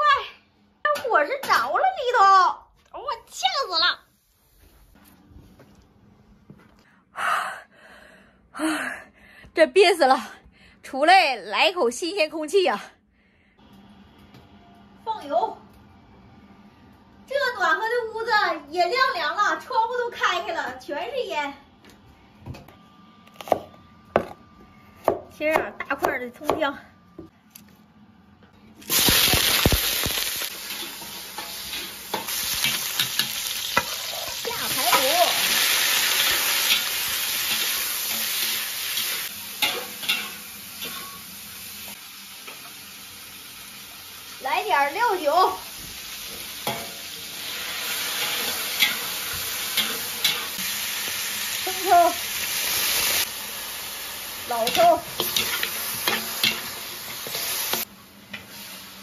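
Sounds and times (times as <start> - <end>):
food sizzling in hot oil: 28.8 - 59.0.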